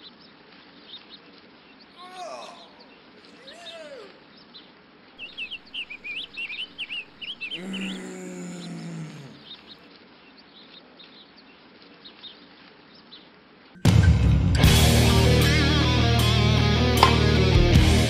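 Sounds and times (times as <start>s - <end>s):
small birds chirping: 0.0s - 13.3s.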